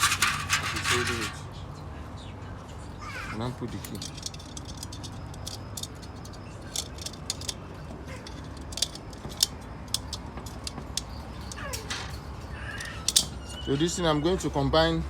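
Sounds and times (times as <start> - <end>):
metal parts clicking and tapping: 0.0 - 1.4, 3.7 - 13.4.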